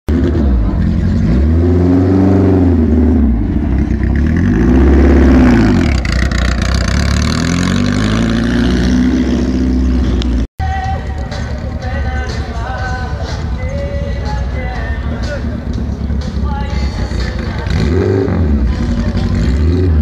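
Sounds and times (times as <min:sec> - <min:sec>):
racing car engine revving: 0:00.1 - 0:10.5, 0:17.0 - 0:20.0.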